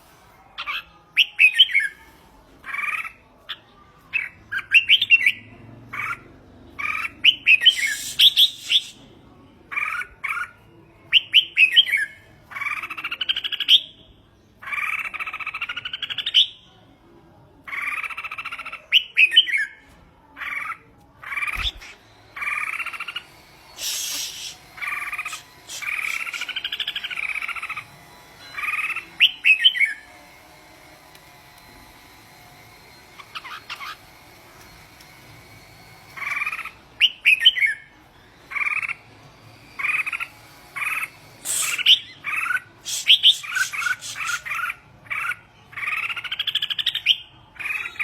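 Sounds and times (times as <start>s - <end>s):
bird singing: 21.4s - 27.7s, 41.4s - 48.0s.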